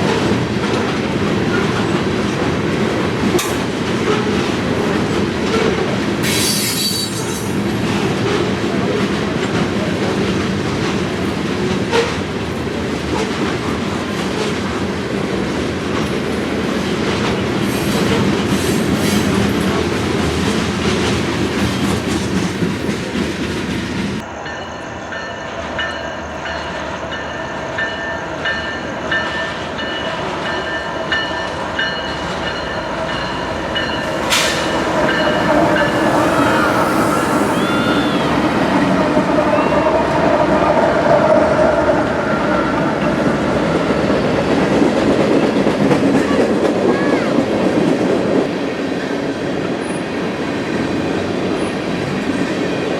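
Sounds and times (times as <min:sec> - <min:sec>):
train wheels clicking over rail joints: 0:00.0 - 0:24.3, 0:27.9 - 0:39.4
high-pitched ringing from wheels: 0:06.2 - 0:07.6, 0:24.3 - 0:38.6.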